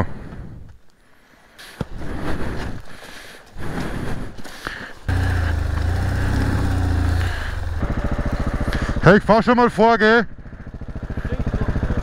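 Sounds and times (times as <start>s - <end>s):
motorcycle engine running: 5.0s - 12.0s.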